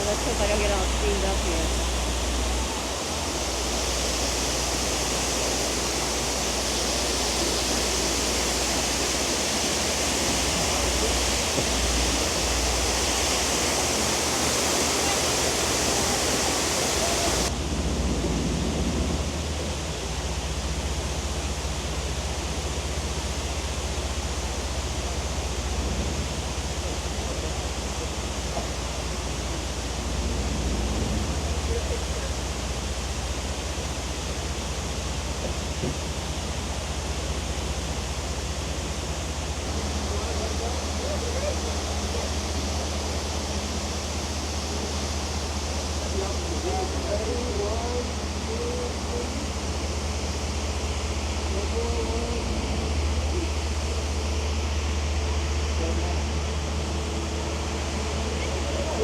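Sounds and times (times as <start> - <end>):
waterfall rushing: 0.0 - 17.7, 38.0 - 59.0.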